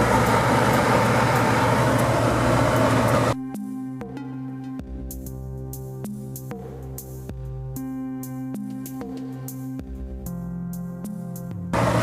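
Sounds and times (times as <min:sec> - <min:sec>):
blower fan rushing air: 0:00.0 - 0:03.4, 0:11.8 - 0:12.0
synthesizer background music: 0:00.2 - 0:11.8.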